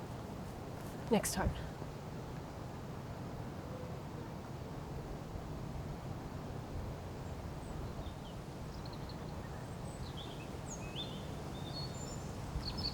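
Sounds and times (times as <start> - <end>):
small birds chirping: 7.9 - 12.9.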